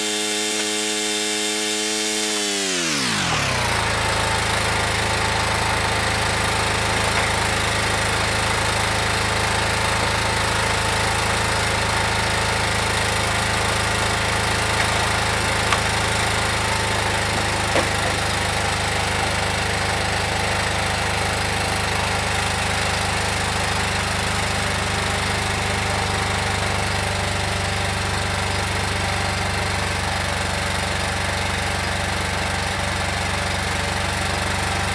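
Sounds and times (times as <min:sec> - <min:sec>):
car engine idling: 0:11.2 - 0:19.4.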